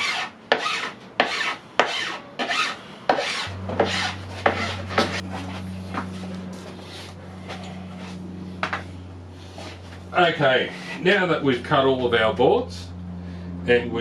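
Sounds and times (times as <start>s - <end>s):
hand file rasping on board edge: 0.0s - 5.2s
steady low hum: 0.0s - 14.0s.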